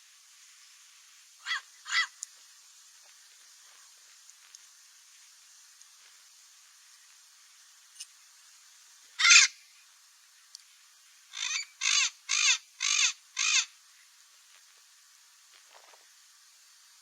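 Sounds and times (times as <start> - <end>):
parrot squawking: 1.4 - 2.1, 9.2 - 9.5, 11.4 - 13.7.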